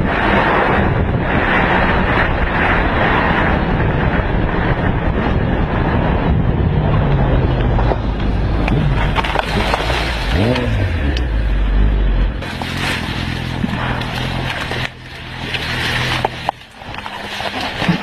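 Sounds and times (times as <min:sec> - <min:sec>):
wind noise on microphone: 0:00.0 - 0:18.0
motorcycle engine running: 0:03.7 - 0:18.0.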